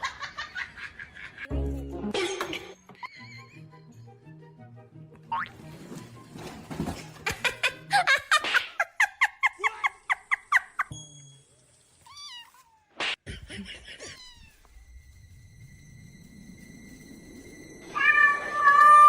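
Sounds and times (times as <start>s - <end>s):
cat meowing: 14.0s - 14.7s, 18.0s - 19.0s.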